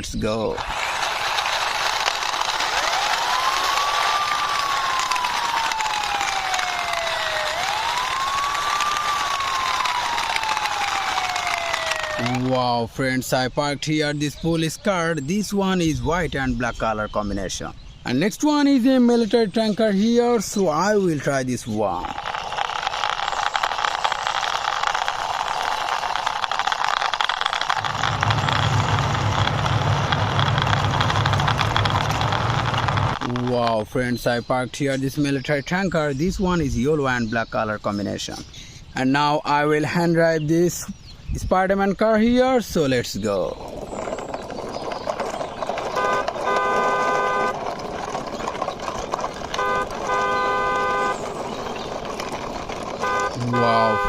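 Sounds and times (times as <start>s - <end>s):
toy truck wheels rattling: 0.0s - 12.8s, 20.4s - 34.2s, 42.6s - 54.0s
electronic toy car horn beeping: 46.0s - 47.6s, 49.5s - 51.4s, 53.0s - 54.0s.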